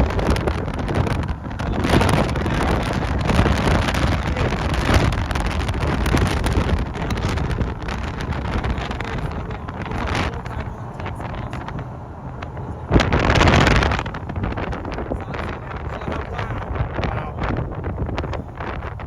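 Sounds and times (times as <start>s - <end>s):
strong wind buffeting microphone: 0.0s - 19.0s.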